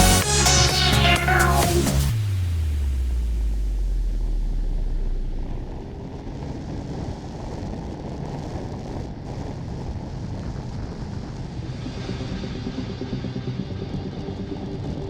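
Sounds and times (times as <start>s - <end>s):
wind rushing over microphone: 4.1s - 15.0s.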